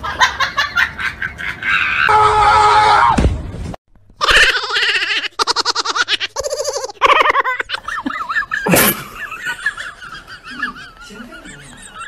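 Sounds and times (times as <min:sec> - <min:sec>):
person laughing hard: 0:04.2 - 0:12.0.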